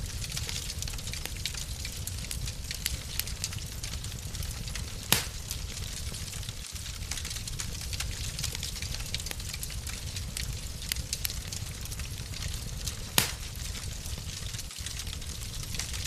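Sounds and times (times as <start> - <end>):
wood fire crackling: 0.0 - 16.0
sharp fire pop: 5.1 - 5.6, 13.2 - 13.6.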